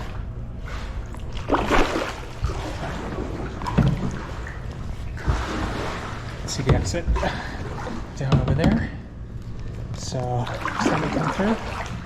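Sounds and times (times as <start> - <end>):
kayak paddle splashing water: 0.7 - 6.5, 10.4 - 12.0.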